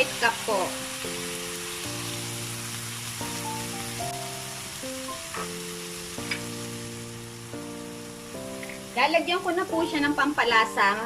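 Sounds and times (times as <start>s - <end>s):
background music of sustained chords: 0.0s - 11.0s
chicken sizzling in a pan: 0.0s - 11.0s.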